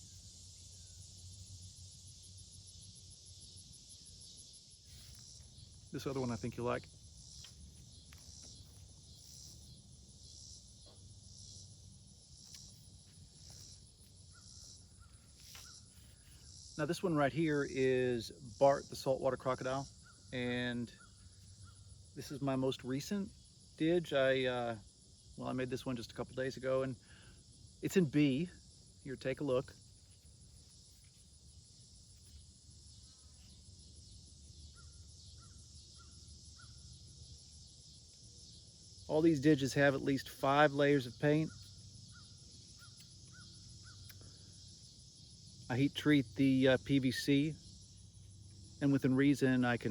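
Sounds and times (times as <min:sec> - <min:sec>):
high-pitched insect chirping: 0:00.0 - 0:49.9
faint bird calls: 0:12.4 - 0:16.5, 0:19.9 - 0:22.0, 0:34.7 - 0:36.9, 0:41.2 - 0:44.6.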